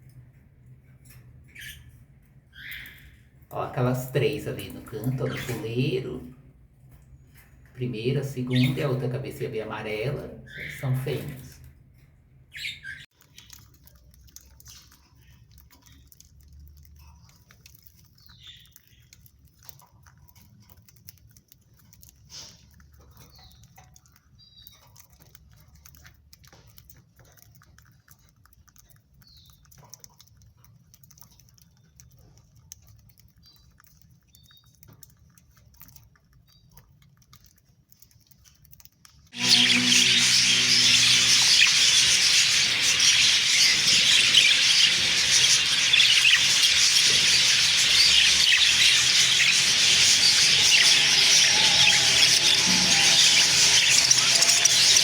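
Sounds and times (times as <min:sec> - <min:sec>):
budgerigars chirping: 0:01.5 - 0:01.9, 0:02.6 - 0:06.2, 0:12.5 - 0:13.1, 0:39.4 - 0:55.0.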